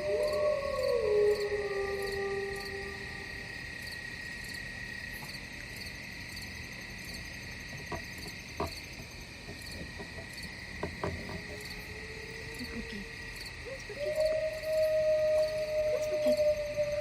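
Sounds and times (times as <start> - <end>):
insect chirps: 0.0 - 17.0
insects droning: 0.0 - 17.0.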